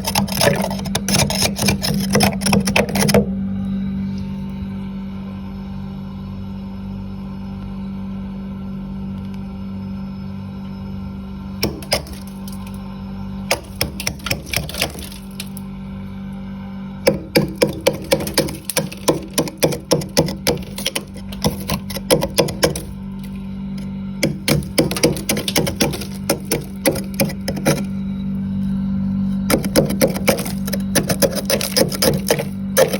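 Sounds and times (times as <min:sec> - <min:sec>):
freezer frost being scraped: 0:00.0 - 0:03.3, 0:11.6 - 0:12.8, 0:13.5 - 0:15.6, 0:17.1 - 0:23.4, 0:24.2 - 0:27.9, 0:29.4 - 0:32.9
steady low hum: 0:00.0 - 0:32.9.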